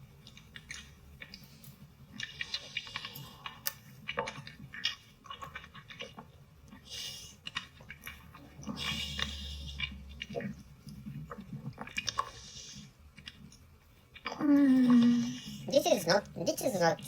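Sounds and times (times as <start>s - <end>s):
wet slurping mouth sounds: 2.1s - 13.6s.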